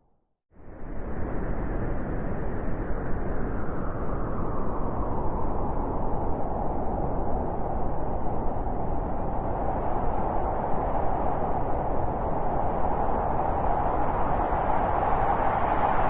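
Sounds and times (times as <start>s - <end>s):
wind blowing: 0.7s - 16.0s.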